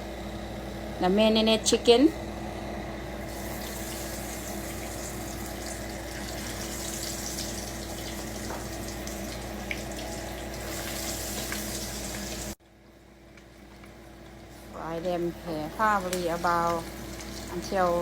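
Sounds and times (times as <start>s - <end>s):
chicken sizzling in hot oil: 3.2s - 12.6s, 13.5s - 18.0s
oil popping: 3.3s - 12.6s.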